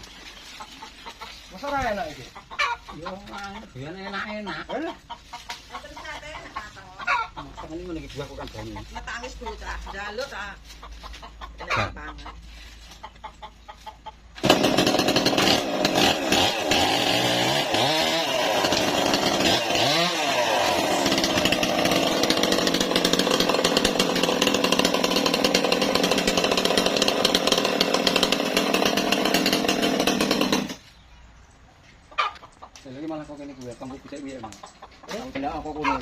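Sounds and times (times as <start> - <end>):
engine-driven saw cutting timber: 14.4 - 30.8.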